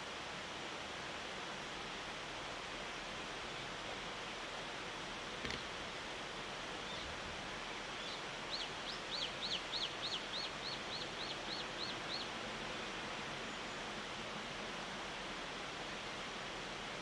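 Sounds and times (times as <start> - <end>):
background hiss: 0.0 - 17.0
bird chirping: 8.0 - 12.3.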